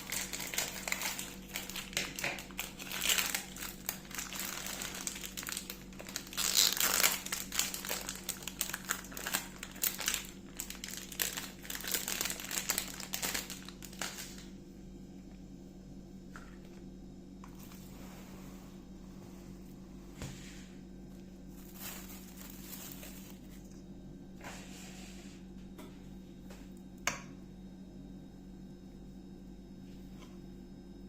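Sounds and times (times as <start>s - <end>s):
plastic or paper crinkling: 0.0s - 14.5s, 21.5s - 23.8s
low hum: 12.7s - 31.0s.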